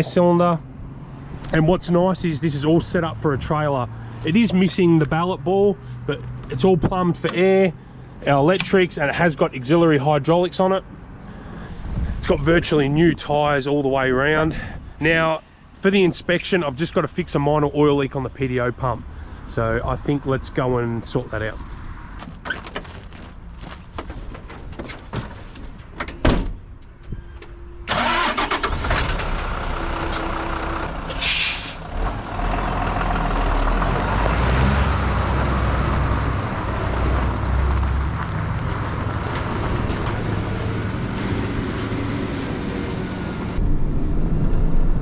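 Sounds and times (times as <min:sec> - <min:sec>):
diesel engine starting and running: 0:00.0 - 0:12.9, 0:26.8 - 0:45.0
short hiss: 0:31.2 - 0:31.8.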